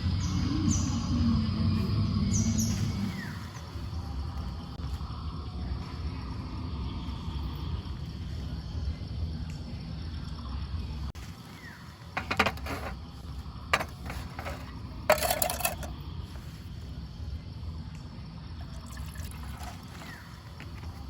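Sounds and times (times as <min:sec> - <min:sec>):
liquid pouring splashes: 0:18.8 - 0:20.2.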